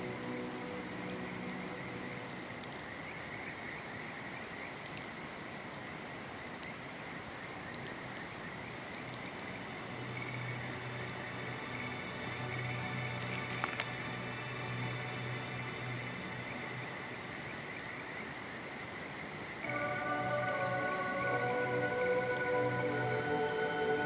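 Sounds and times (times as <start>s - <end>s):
soft music: 0.0s - 3.0s, 9.3s - 17.9s, 19.6s - 24.0s
campfire crackling and popping: 0.0s - 24.0s
chorus of calling creatures: 19.6s - 24.0s
river rushing: 19.6s - 24.0s.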